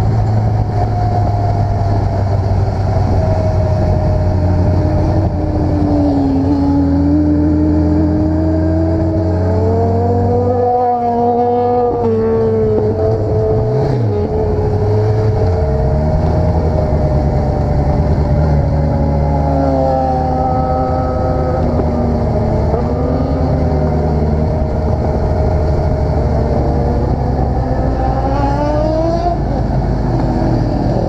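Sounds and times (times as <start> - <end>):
vehicle engine running: 11.4 - 31.0.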